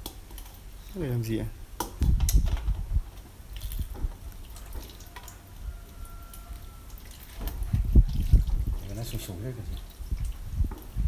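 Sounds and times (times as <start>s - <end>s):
liquid dripping and trickling: 3.5s - 11.0s.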